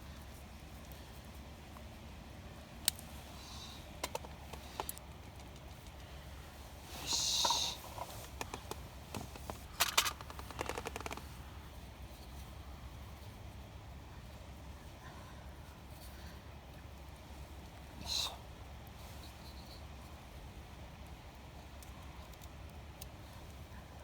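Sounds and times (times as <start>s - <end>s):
short hiss: 6.9s - 8.1s.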